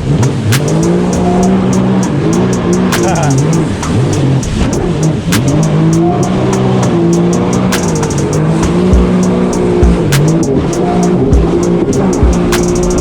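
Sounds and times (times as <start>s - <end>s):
jet ski engine running: 0.0s - 13.0s
music playing: 0.1s - 13.0s.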